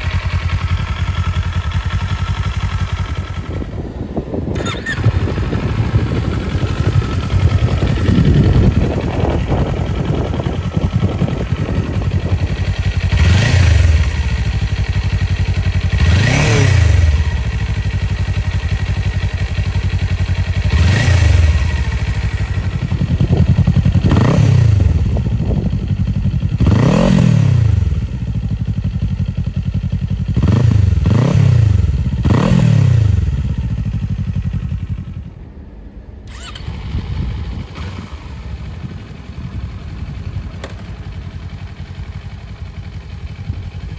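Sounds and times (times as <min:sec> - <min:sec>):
engine revving in blips: 0:15.9 - 0:17.5, 0:30.4 - 0:34.0.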